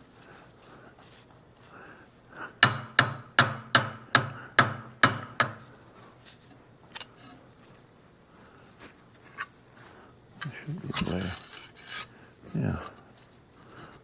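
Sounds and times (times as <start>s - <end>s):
hammer tapping on metal: 2.6s - 5.7s.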